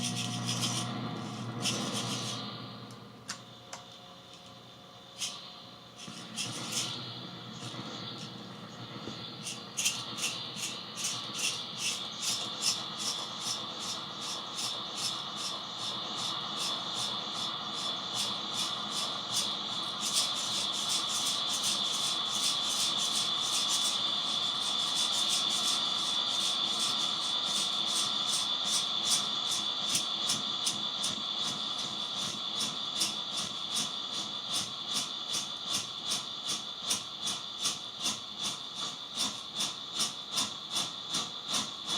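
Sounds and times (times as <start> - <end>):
harsh pulsing electronic noise: 0.0 - 3.6, 5.2 - 34.6.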